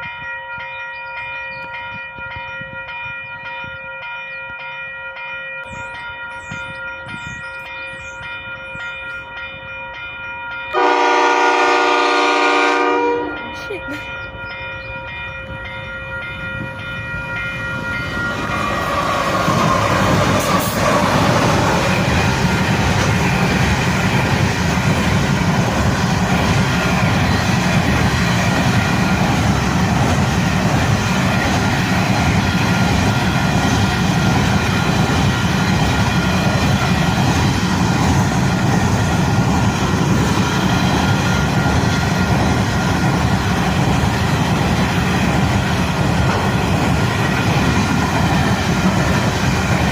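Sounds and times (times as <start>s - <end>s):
train wagons rumbling and clattering: 5.6s - 49.9s
locomotive horn chord: 10.7s - 13.6s.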